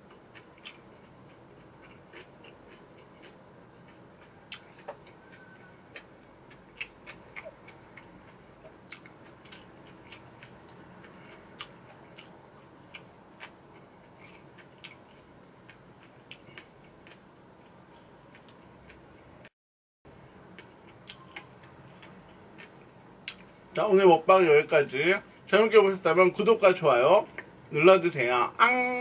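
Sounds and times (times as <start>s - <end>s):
low room hum: 0.0s - 19.5s, 20.1s - 29.0s
chewing with wet mouth clicks: 0.1s - 19.0s, 20.5s - 23.6s.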